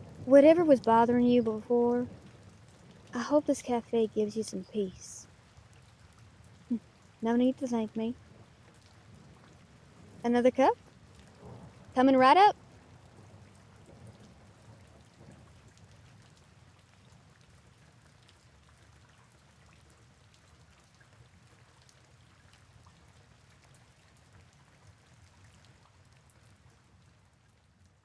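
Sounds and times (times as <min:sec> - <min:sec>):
raindrop ticks: 0:00.0 - 0:26.5
faint rain hiss: 0:00.0 - 0:28.0.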